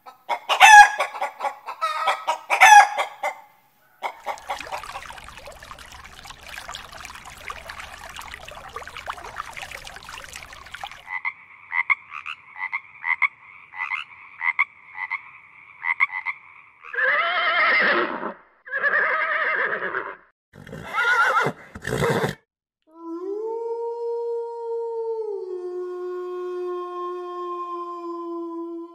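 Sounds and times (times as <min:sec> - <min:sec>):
aquarium water bubbling: 0:04.0 - 0:11.1
frog croaking: 0:04.0 - 0:17.0
horse whinnying: 0:17.0 - 0:22.4.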